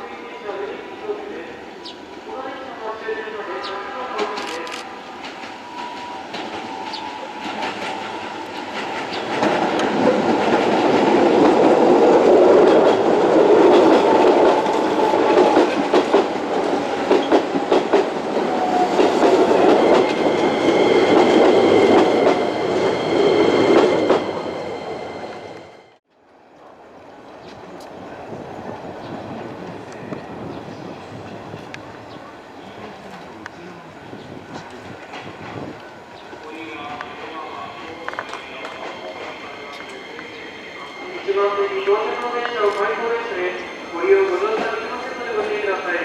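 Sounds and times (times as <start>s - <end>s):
train wheels clattering on rails: 4.2s - 24.3s, 37.8s - 41.0s.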